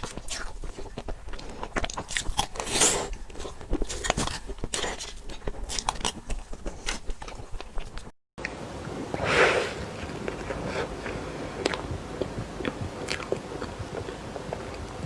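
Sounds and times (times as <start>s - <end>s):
wet chewing and smacking: 0.0s - 8.1s, 9.8s - 15.0s.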